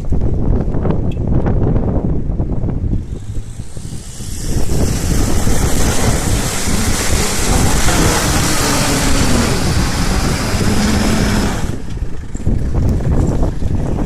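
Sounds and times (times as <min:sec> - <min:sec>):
car engine low rumble: 0:00.0 - 0:14.0
loud rushing noise: 0:03.0 - 0:12.2.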